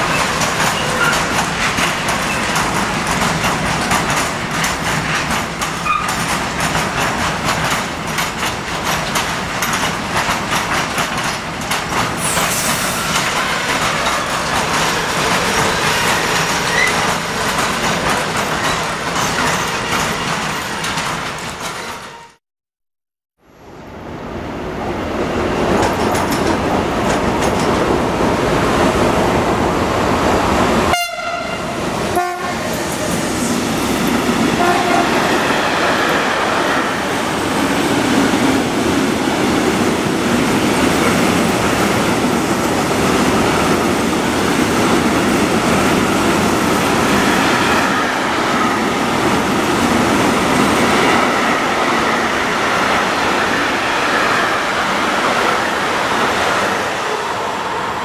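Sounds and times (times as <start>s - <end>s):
freight train wheels rumbling: 0.0s - 22.4s, 24.4s - 58.0s
train horn blasts: 30.9s - 32.6s, 34.6s - 35.1s.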